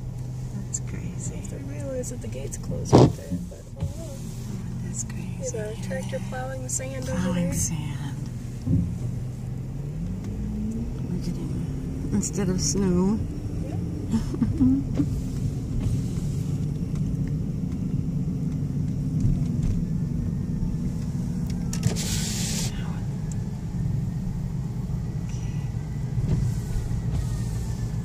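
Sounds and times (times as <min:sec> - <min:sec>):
car engine and tyre hum: 0:00.0 - 0:28.0
brief hiss: 0:21.8 - 0:22.8.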